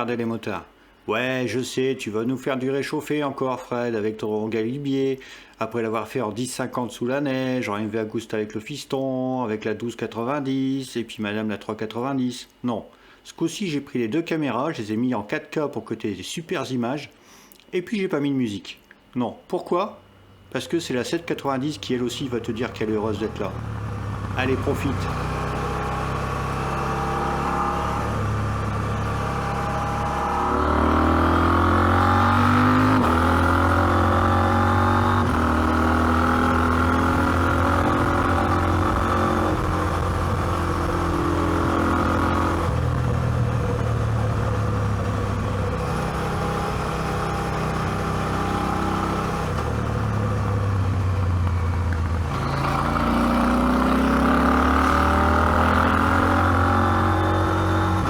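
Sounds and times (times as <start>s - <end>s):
motorcycle engine accelerating: 20.6s - 58.0s.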